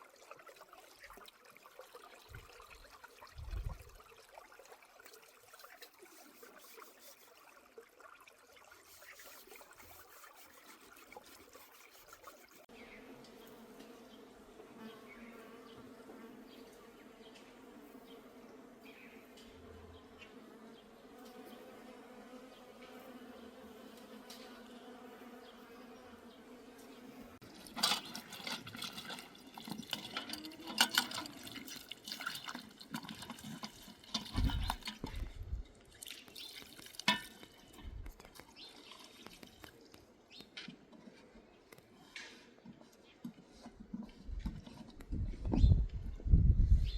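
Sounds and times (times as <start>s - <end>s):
water splashing and pouring: 0.0s - 12.7s, 27.4s - 40.0s
clinks and knocks of handling: 27.7s - 31.6s.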